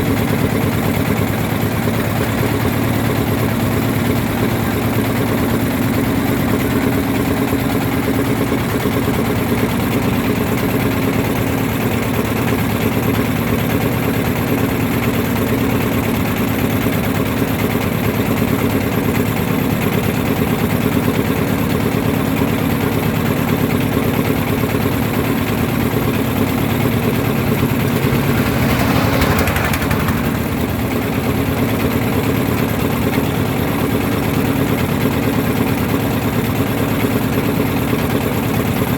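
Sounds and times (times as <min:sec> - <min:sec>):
boat engine running: 0:00.0 - 0:38.9
brief rush of noise: 0:27.3 - 0:31.3.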